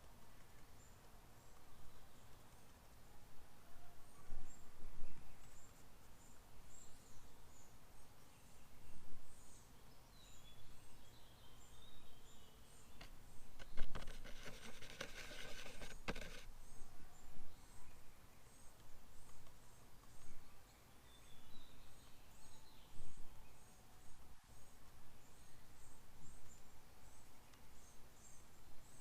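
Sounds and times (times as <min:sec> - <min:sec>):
small birds chirping: 0:00.0 - 0:29.0
scratchy rustling with clicks: 0:13.0 - 0:16.5.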